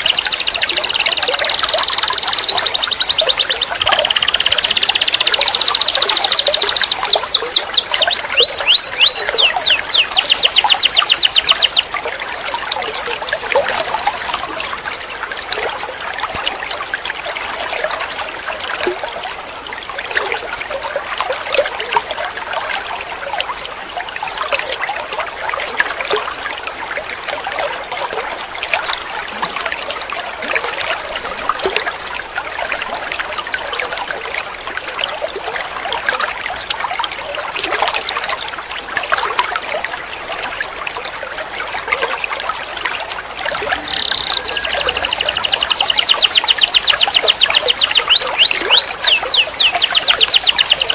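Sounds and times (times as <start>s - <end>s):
canary singing trills: 0.0s - 11.9s, 43.5s - 50.9s
trickle of running water: 0.0s - 50.9s.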